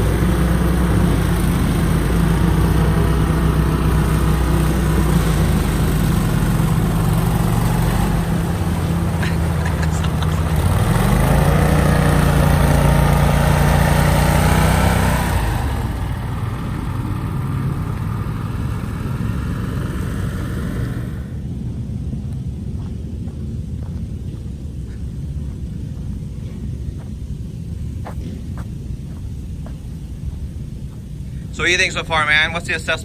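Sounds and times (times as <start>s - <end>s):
off-road vehicle engine running: 0.0s - 33.0s.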